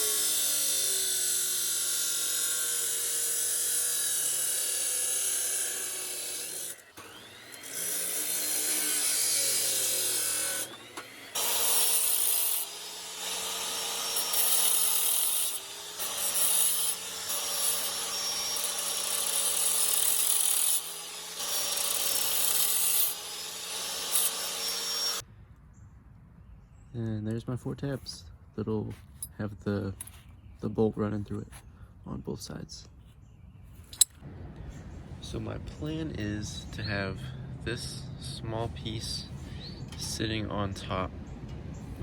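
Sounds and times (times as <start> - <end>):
power tool grinding steel: 0.0 - 25.2.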